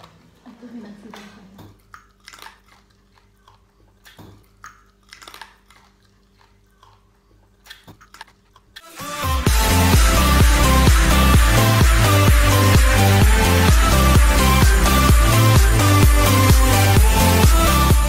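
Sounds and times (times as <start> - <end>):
person biting and chewing: 1.6 - 8.9
wet mouth clicks and smacks: 1.6 - 8.9.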